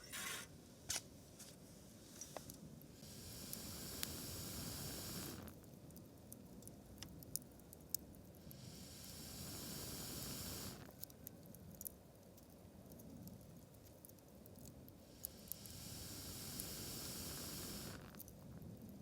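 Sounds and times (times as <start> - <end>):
steady hissing: 1.9 - 11.8, 14.1 - 19.0
embers ticking and popping: 2.4 - 19.0.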